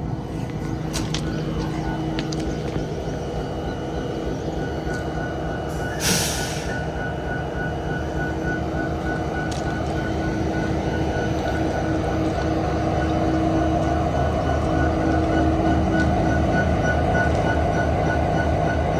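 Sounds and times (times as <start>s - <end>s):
locomotive engine idling: 0.0s - 18.9s
air release hiss: 5.9s - 6.8s.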